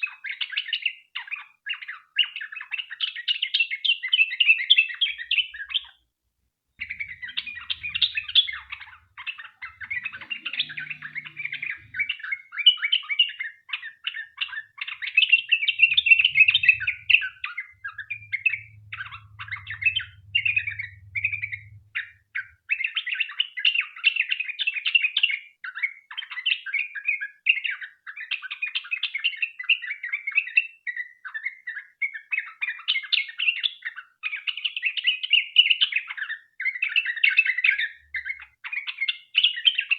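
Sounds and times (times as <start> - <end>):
bird singing chattering phrases: 6.8 - 12.5, 14.2 - 21.8.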